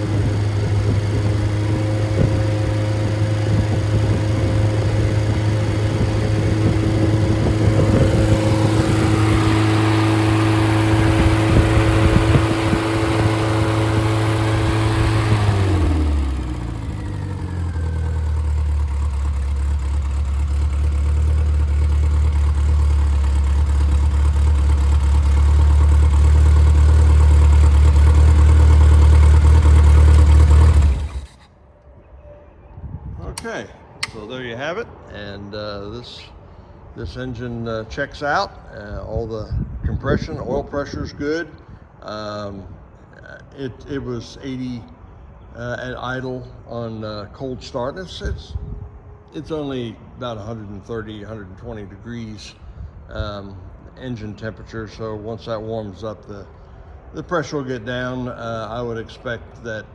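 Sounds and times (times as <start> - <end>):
car engine running: 0.0 - 31.5.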